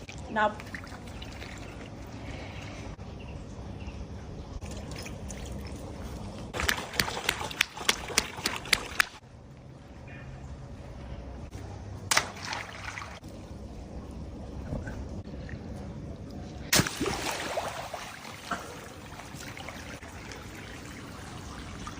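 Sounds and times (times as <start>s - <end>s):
water trickling and pouring: 0.0s - 2.7s, 4.6s - 6.4s, 16.9s - 21.9s
water splashing: 12.1s - 13.5s, 16.7s - 21.9s.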